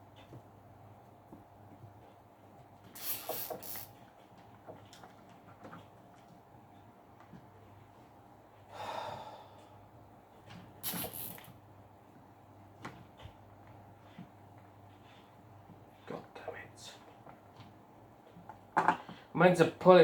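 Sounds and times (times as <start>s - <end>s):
person breathing out sharply: 8.7s - 9.6s.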